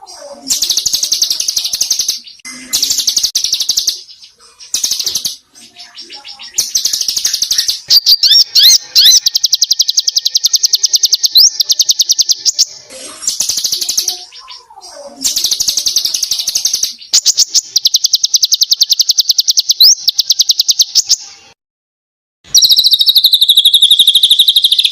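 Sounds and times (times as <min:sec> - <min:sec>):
songbird rapid trills: 0:22.6 - 0:24.9.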